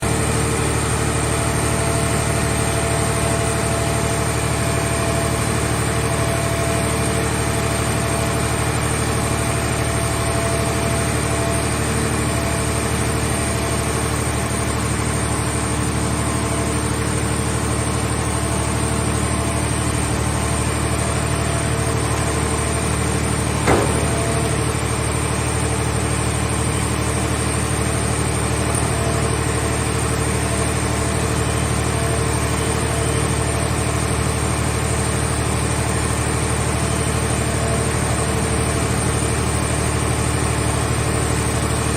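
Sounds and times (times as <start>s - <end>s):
machine power unit humming: 0.0s - 41.9s
short knock: 23.6s - 24.7s.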